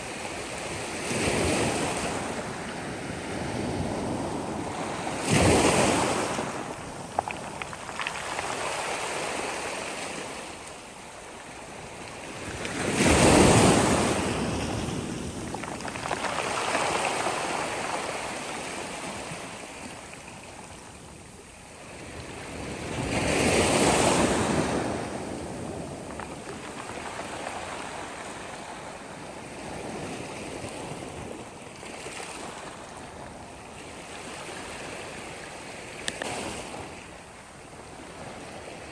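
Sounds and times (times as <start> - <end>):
sea waves breaking on shore: 0.0 - 21.1.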